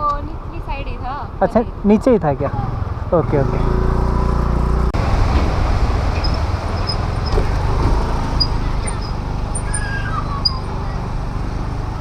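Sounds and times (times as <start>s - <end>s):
road and wind noise: 0.0s - 12.0s
motor scooter engine running: 2.3s - 4.9s, 6.3s - 12.0s.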